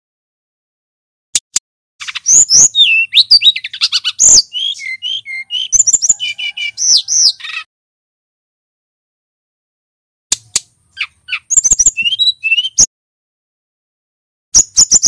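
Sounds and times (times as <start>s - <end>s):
bird singing whistled notes: 2.0s - 7.7s, 11.0s - 12.9s, 14.6s - 15.0s.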